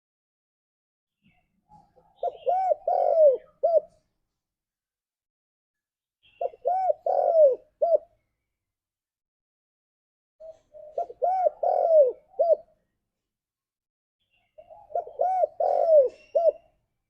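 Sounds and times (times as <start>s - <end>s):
dove cooing: 1.7s - 4.1s, 6.4s - 8.2s, 10.4s - 12.7s, 14.6s - 16.8s.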